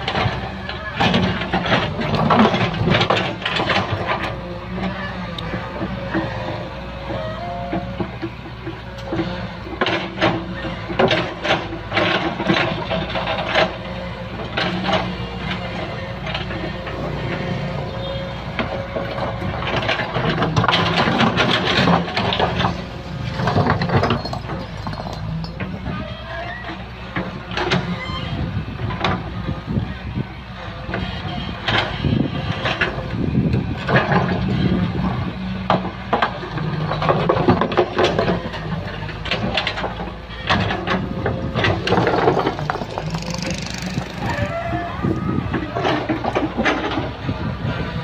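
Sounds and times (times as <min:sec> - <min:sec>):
machine clanks and scrapes: 0:00.0 - 0:29.2, 0:33.8 - 0:44.9, 0:45.5 - 0:48.0
excavator engine under load: 0:00.0 - 0:48.0
bucket scraping soil and stones: 0:41.7 - 0:44.6.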